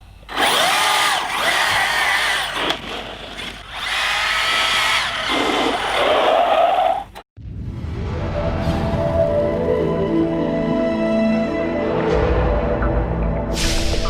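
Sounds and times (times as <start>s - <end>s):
electric motors whining: 0.2s - 7.2s.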